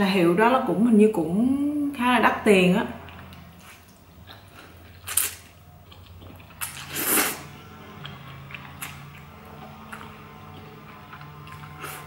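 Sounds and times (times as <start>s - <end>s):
person slurping noodles: 6.6s - 7.6s.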